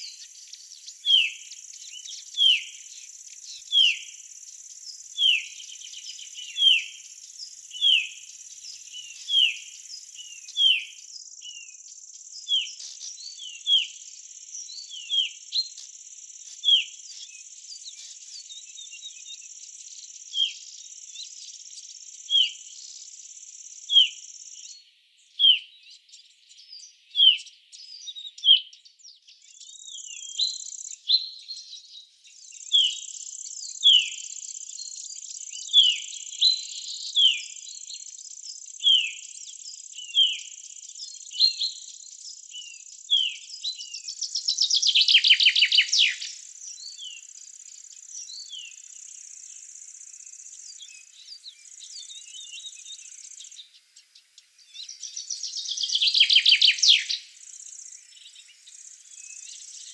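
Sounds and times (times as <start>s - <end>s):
bird downward-slurred call: 3.6s - 4.1s, 5.2s - 7.0s, 7.7s - 8.3s, 9.0s - 11.0s, 44.9s - 46.4s, 54.9s - 57.3s.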